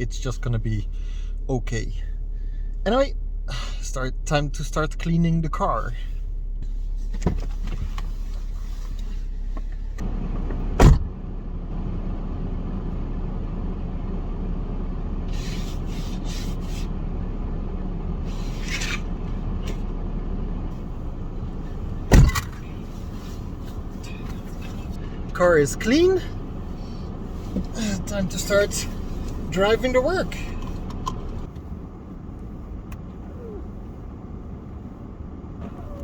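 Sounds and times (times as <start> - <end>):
steady low rumble: 0.0 - 36.0
snow scraping off a car: 21.6 - 25.0
loud thumps: 21.9 - 22.8.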